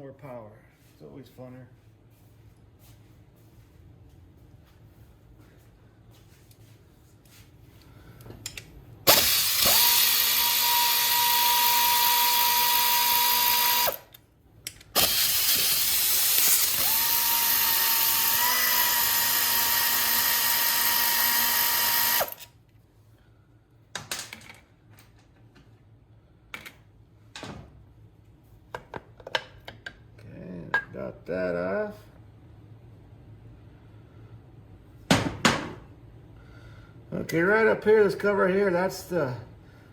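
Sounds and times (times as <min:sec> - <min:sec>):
power tool whine: 0:09.1 - 0:14.2, 0:15.0 - 0:22.5.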